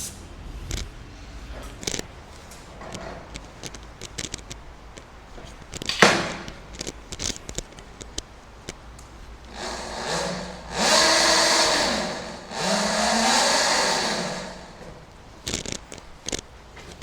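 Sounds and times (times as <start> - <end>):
rushing whir: 9.5 - 15.6.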